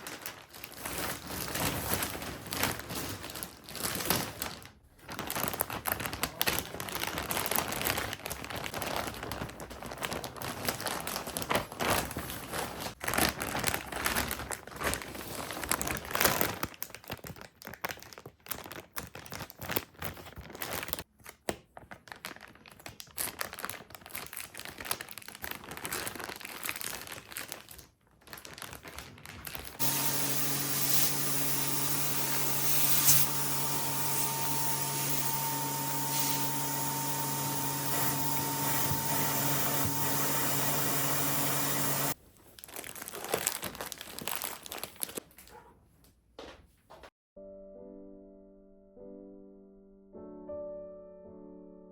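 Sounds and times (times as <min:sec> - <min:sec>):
packaging crinkling: 0:00.0 - 0:45.6
vacuum cleaner running: 0:29.8 - 0:42.2.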